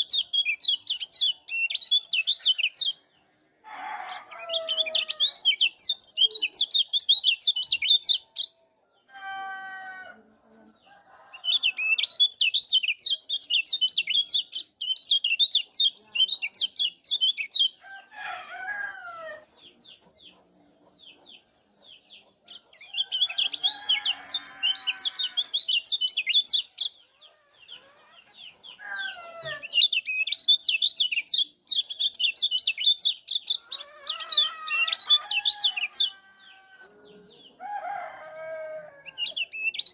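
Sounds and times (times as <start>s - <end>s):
birds chattering rapidly: 0.0s - 8.6s, 10.6s - 39.9s
rooster calling: 9.1s - 10.2s, 28.8s - 29.7s.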